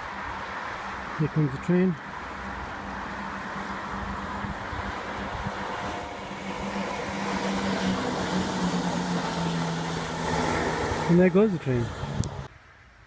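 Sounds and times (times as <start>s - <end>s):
train rumbling past: 2.3s - 12.5s.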